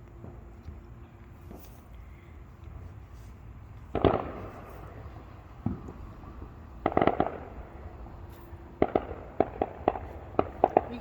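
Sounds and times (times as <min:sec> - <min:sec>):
fireworks bangs: 0:03.9 - 0:11.0.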